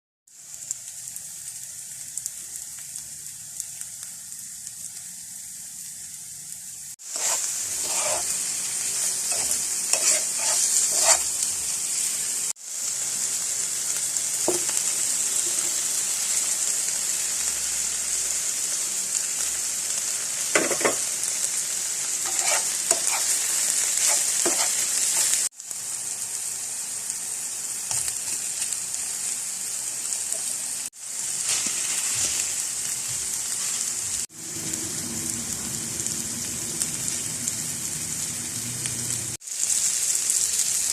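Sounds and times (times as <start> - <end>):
food sizzling in a pan: 0.3 - 40.9
utensil scraping a pan: 7.0 - 11.4, 22.2 - 25.5.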